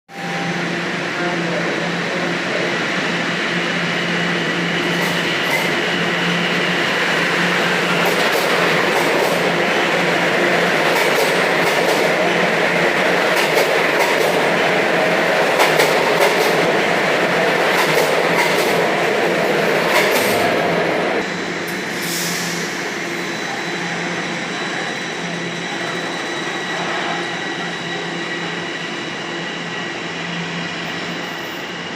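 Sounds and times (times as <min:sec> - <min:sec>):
subway train rumble and whine: 0:00.1 - 0:31.9
wheels clacking over rails: 0:10.1 - 0:12.3, 0:13.0 - 0:20.6.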